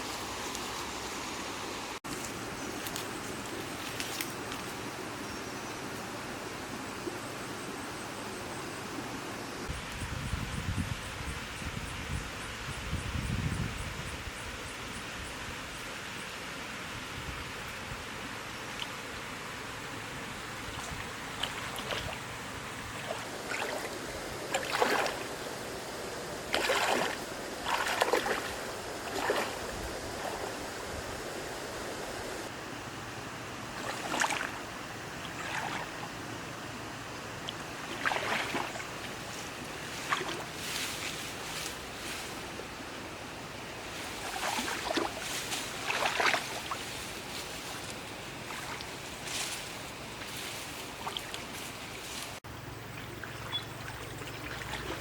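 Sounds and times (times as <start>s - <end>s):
steady hiss: 0.0s - 21.4s, 36.0s - 52.8s
water sloshing and splashing: 20.6s - 25.5s, 26.4s - 30.6s, 33.7s - 36.2s, 37.3s - 42.6s, 43.8s - 55.0s.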